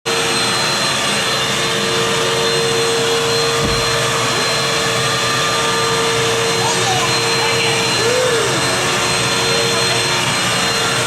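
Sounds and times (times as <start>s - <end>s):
vacuum cleaner running: 0.1s - 11.0s
low bump: 3.6s - 4.4s.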